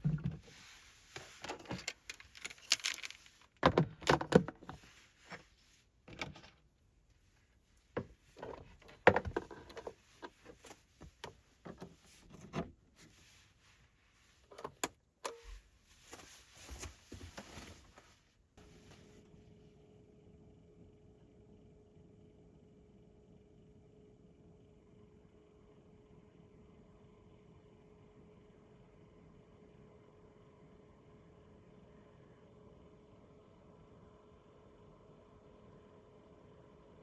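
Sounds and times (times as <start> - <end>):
low hum with held tone: 0.0 - 37.0.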